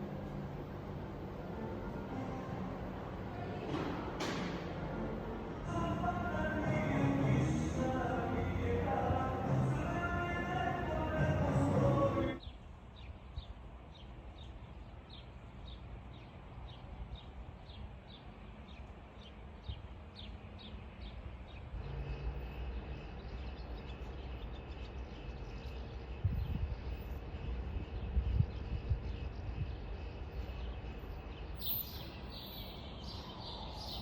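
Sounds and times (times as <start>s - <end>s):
bird chirping: 12.4s - 34.0s.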